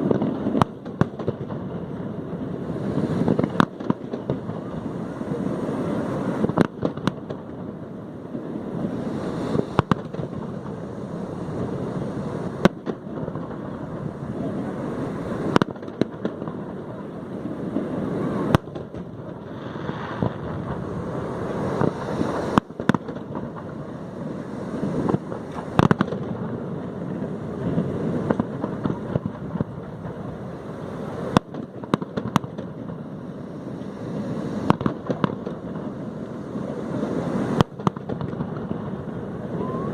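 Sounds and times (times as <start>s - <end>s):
continuous rumbling: 0.0s - 39.9s
firework shells bursting: 9.0s - 14.2s, 17.8s - 24.0s, 24.6s - 36.2s.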